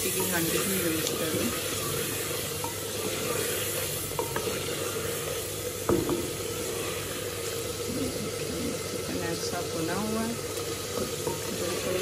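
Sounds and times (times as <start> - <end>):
chicken sizzling in a pot: 0.0 - 12.0
wooden spoon scraping a pot: 0.0 - 12.0.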